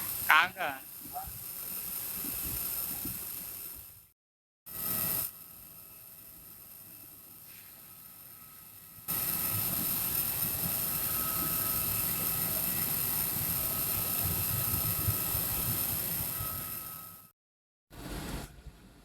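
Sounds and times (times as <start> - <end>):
faint hiss: 0.0 - 4.0.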